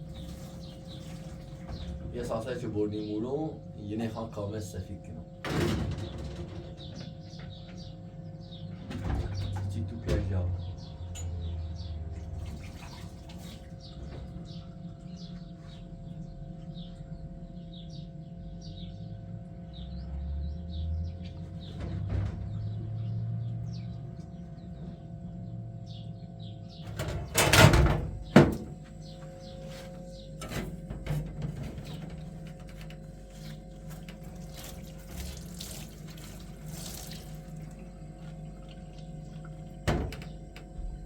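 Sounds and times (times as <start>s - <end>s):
steady low hum: 0.0s - 41.0s
door banging shut: 26.8s - 28.8s.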